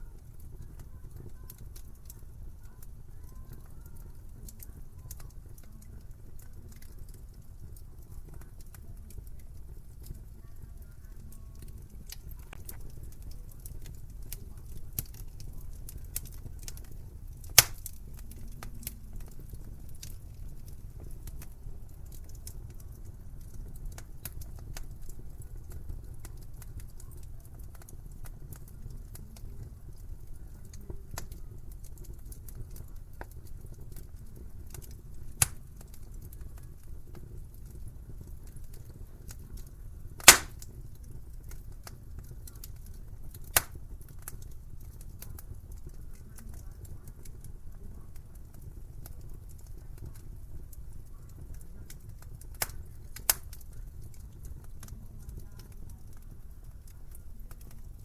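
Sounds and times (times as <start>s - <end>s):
wood fire crackling: 0.0s - 58.0s
loud sharp pops of fire: 11.6s - 50.2s, 51.3s - 56.3s.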